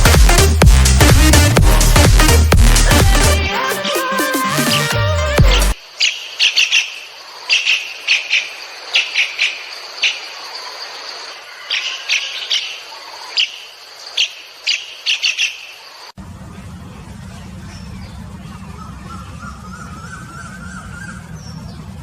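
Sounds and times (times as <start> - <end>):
small bird chirping: 5.9 - 16.2.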